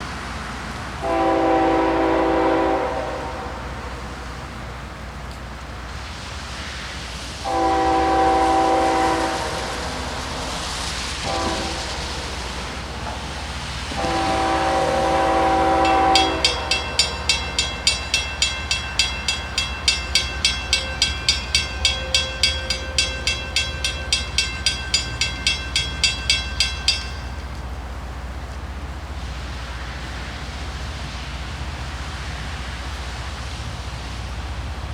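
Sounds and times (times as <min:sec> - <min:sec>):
train rumbling: 0:00.0 - 0:34.9
locomotive air horn blasts: 0:01.0 - 0:04.0, 0:07.4 - 0:09.9, 0:11.2 - 0:12.3, 0:13.9 - 0:26.8
bell ringing rapidly: 0:15.8 - 0:27.5.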